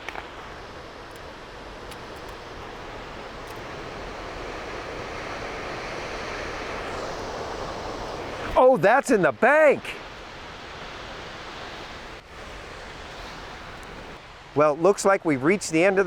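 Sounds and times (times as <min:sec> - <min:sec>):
waterfall roaring: 0:00.0 - 0:16.0.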